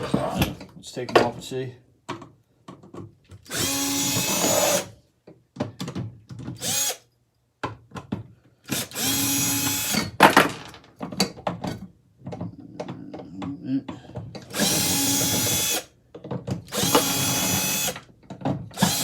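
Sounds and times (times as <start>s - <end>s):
power drill running: 3.5s - 4.9s, 6.6s - 7.0s, 8.7s - 10.1s, 14.5s - 15.9s, 16.7s - 18.0s, 18.8s - 19.0s.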